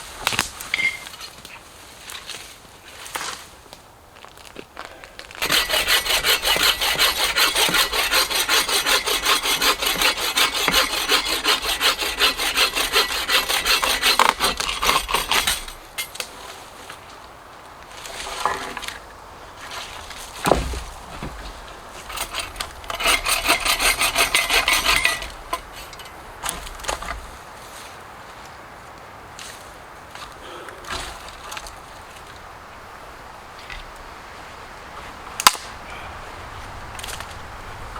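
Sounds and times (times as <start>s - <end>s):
hand saw cutting wood: 5.4s - 16.2s, 18.0s - 19.0s, 19.6s - 27.3s.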